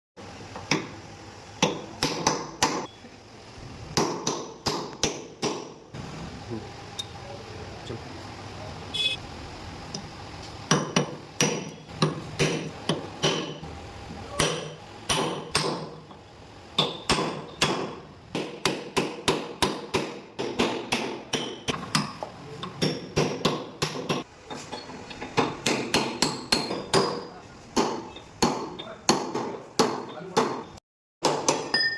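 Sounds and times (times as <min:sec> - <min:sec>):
hammer striking steel: 0:10.7 - 0:13.7, 0:14.4 - 0:16.2, 0:16.8 - 0:24.3, 0:25.3 - 0:31.9.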